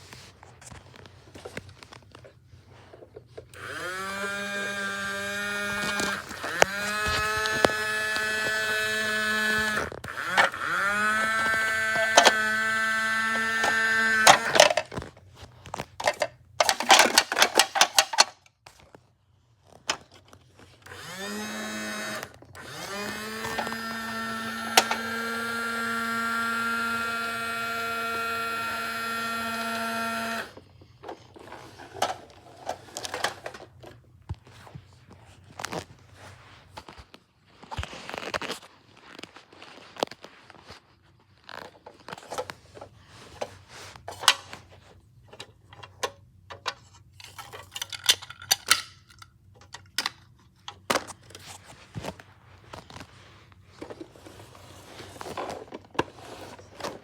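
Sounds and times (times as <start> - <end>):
small electric motor whining: 3.6 - 14.8, 20.8 - 30.6.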